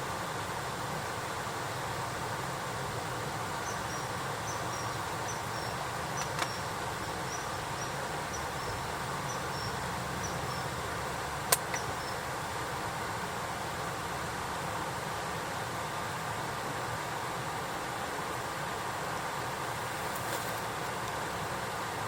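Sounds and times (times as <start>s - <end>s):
crickets chirping: 0.0s - 14.0s
steady hiss: 0.0s - 22.0s
sharp snaps: 11.4s - 11.9s.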